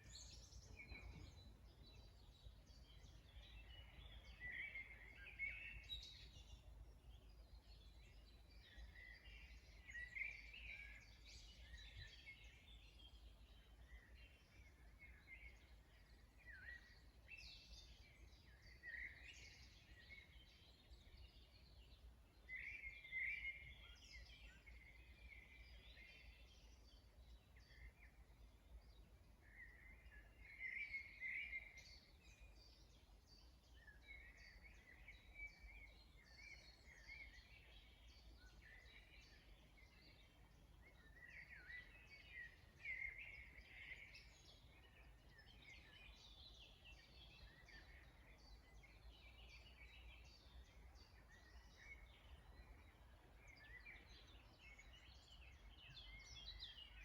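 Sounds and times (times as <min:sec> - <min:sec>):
birds chirping: 0:00.0 - 0:07.4.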